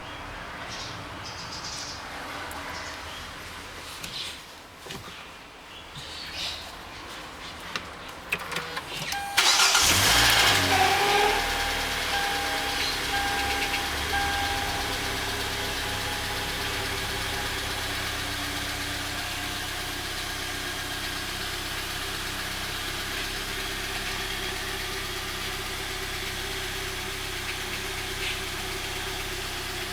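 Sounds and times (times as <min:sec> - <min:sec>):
car engine starting and idling: 0:07.6 - 0:29.9.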